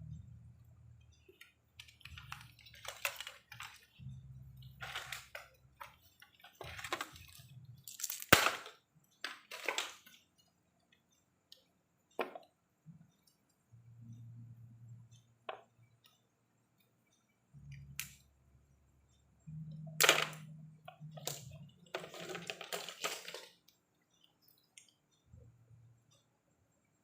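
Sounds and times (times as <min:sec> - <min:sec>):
low hum: 0:00.0 - 0:03.0, 0:03.7 - 0:05.9, 0:13.6 - 0:16.0, 0:17.5 - 0:22.0
scraping and rustling handling noises: 0:04.7 - 0:08.3, 0:21.9 - 0:23.6.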